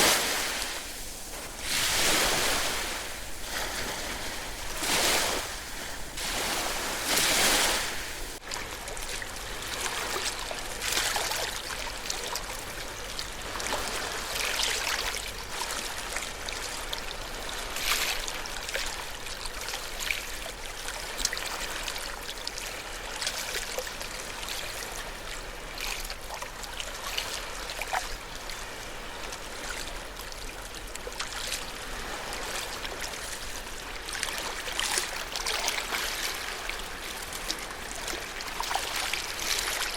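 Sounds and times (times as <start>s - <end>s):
trickling water: 0.0s - 13.7s, 29.4s - 39.9s
ocean waves washing on shore: 0.0s - 19.1s, 21.0s - 39.9s.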